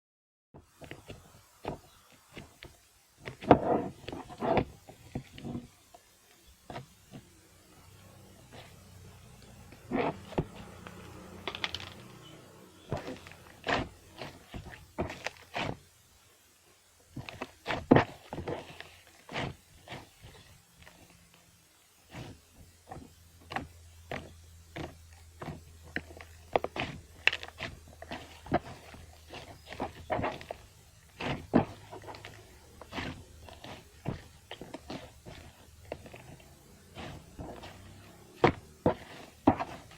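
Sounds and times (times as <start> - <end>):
steady low hum: 0.8 - 39.9
hands squishing slime: 23.0 - 39.9.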